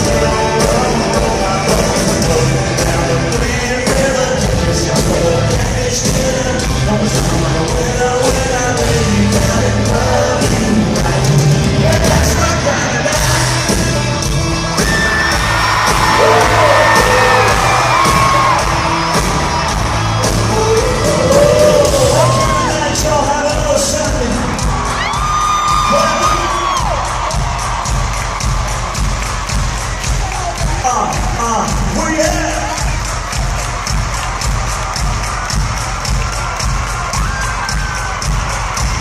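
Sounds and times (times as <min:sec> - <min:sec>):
man singing: 0:00.0 - 0:15.3, 0:16.0 - 0:18.7, 0:20.2 - 0:24.6
country-rock band playing: 0:00.0 - 0:39.0
drum beat: 0:00.0 - 0:39.0
crowd yelling: 0:08.0 - 0:39.0.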